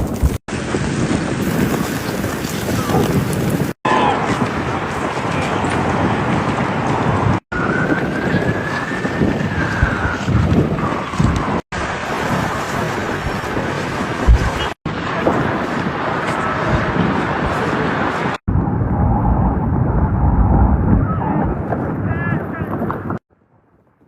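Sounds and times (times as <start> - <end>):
wind blowing across microphone: 0.0 - 23.3.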